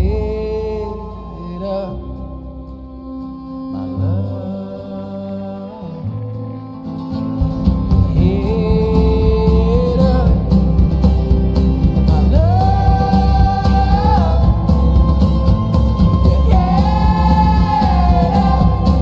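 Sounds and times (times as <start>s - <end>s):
sliding long held melody notes: 0.0s - 19.0s
music with bass and beat: 6.1s - 19.0s.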